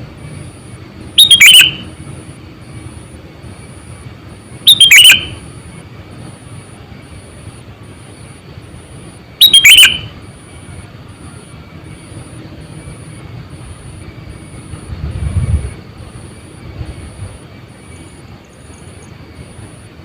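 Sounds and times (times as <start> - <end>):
bird calls: 1.2 - 1.9, 4.7 - 5.4, 9.4 - 13.1
low rumble: 12.1 - 17.8.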